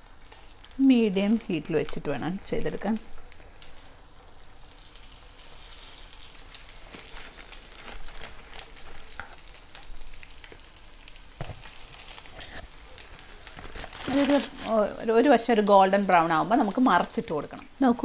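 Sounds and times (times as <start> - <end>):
chicken sizzling in oil: 0.0 - 18.0.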